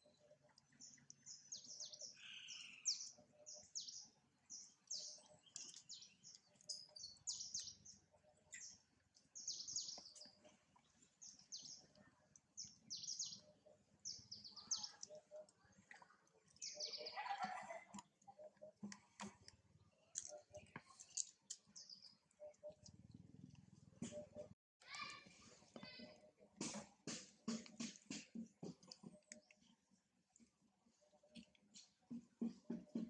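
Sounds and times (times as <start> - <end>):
faint high bird chirps: 0.0 - 23.1.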